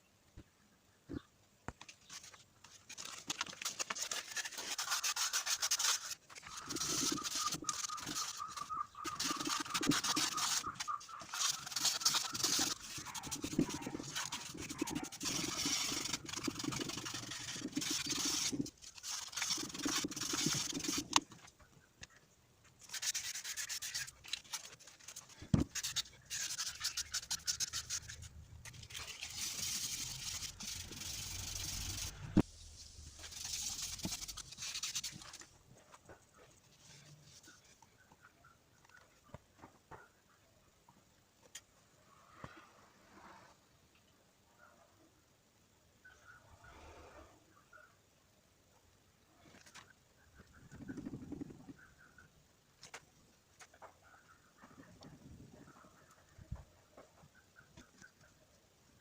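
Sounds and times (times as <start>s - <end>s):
abrasive rubbing on metal part: 4.4s - 21.2s, 22.8s - 32.4s.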